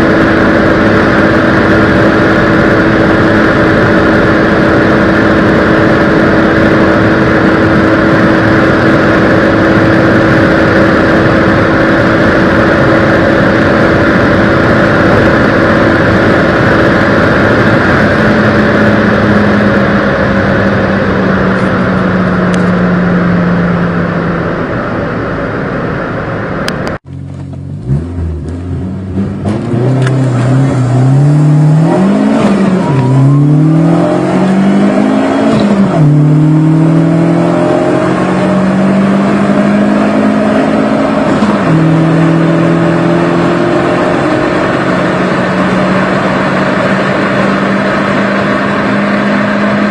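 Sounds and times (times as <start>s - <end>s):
car engine revving up: 0.0s - 49.9s
small car engine running hard: 0.0s - 49.9s.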